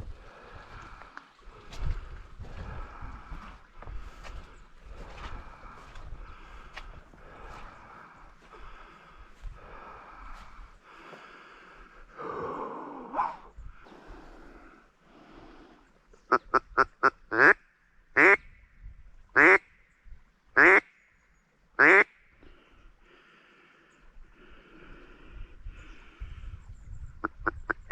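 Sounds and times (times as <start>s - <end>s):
bird calling loudly: 16.2s - 17.6s.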